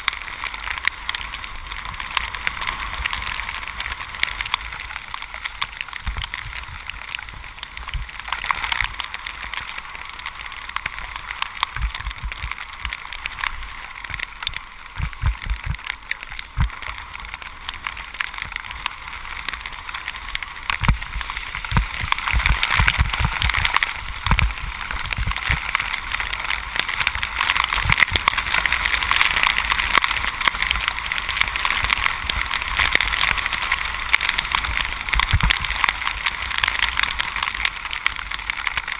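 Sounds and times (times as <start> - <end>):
bicycle tyres hissing on wet road: 0.0 - 38.9
wind rumble on microphone: 0.0 - 38.9.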